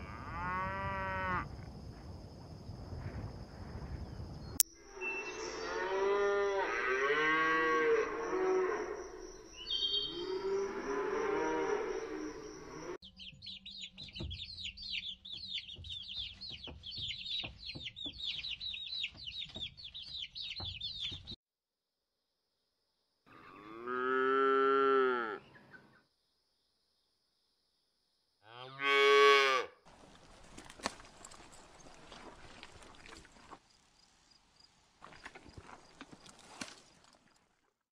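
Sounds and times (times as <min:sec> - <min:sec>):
chicks peeping: 0:13.1 - 0:21.4
cattle mooing: 0:23.3 - 0:25.4.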